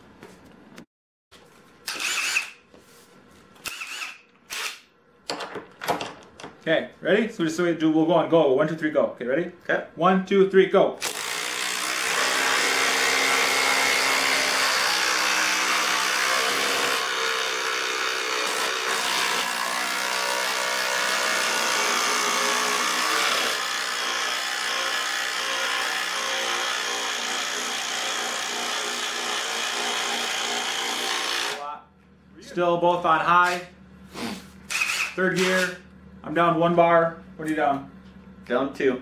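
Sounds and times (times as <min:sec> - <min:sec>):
impact drivers hammering screws: 0:01.9 - 0:02.6, 0:03.6 - 0:06.0, 0:11.0 - 0:31.6, 0:34.7 - 0:35.7.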